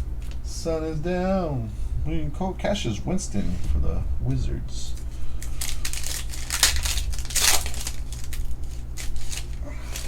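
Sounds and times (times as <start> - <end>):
foil wrapper tearing and crinkling: 5.2 - 10.0.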